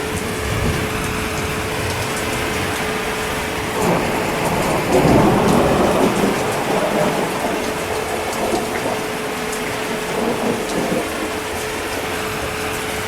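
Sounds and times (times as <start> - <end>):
heavy rain: 0.0 - 13.0
low thunder rumble: 0.0 - 13.0.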